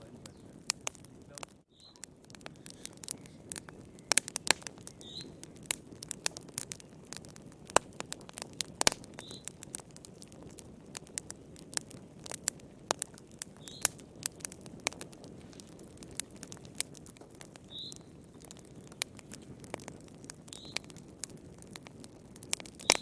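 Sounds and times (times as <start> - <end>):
flames rushing: 0.0 - 23.0
wood fire crackling: 0.0 - 23.0.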